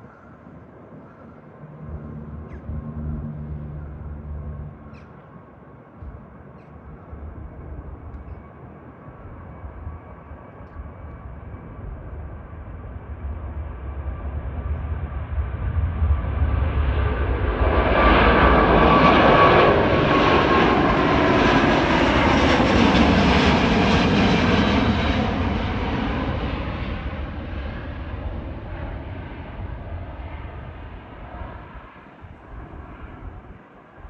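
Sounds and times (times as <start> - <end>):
jet engines roaring: 0.4 - 34.0
engine whine sliding down: 1.8 - 5.1.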